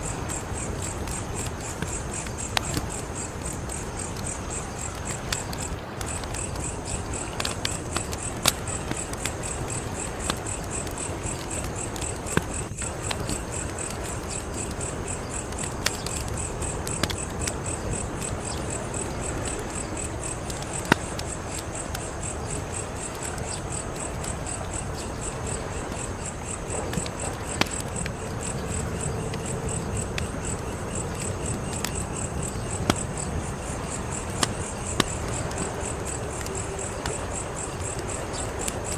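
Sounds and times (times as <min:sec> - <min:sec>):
insects chirping: 0:00.0 - 0:38.9
wood fire crackling and popping: 0:00.0 - 0:38.9.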